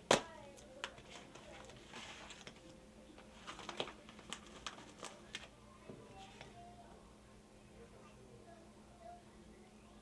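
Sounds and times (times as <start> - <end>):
packaging rustling: 0.8 - 5.5.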